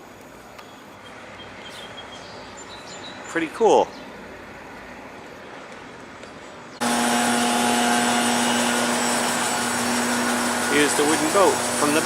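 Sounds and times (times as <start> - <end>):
loud machine hiss: 6.8 - 12.0
machine hum: 6.8 - 12.0.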